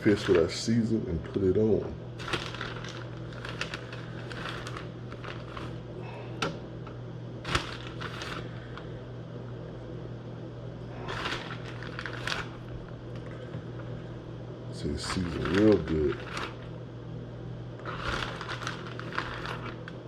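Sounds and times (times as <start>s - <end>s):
rustling and handling noises: 0.0s - 1.4s, 2.2s - 6.6s, 7.4s - 8.9s, 11.0s - 14.0s, 14.8s - 16.8s, 17.8s - 20.0s
steady low hum: 0.0s - 20.0s.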